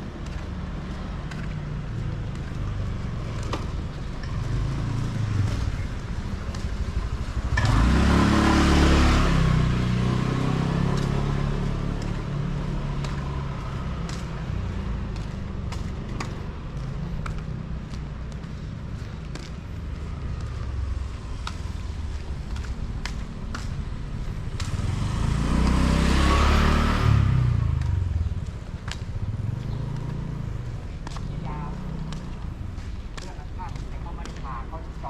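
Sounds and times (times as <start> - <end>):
street traffic rumbling: 0.0 - 35.0
vehicle passing close by: 7.2 - 17.4, 19.0 - 33.0.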